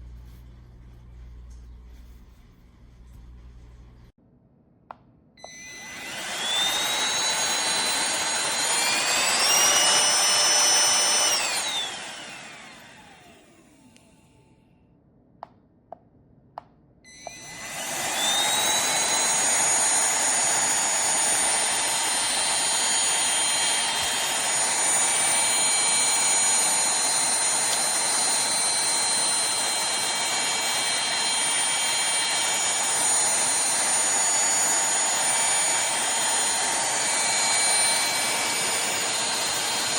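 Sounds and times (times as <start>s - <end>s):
handheld vacuum cleaner motor whine: 5.4s - 14.6s, 17.1s - 39.9s.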